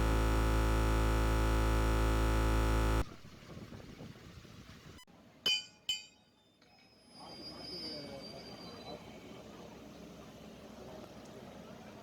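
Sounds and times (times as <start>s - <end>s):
synthesizer chord: 0.0s - 3.0s.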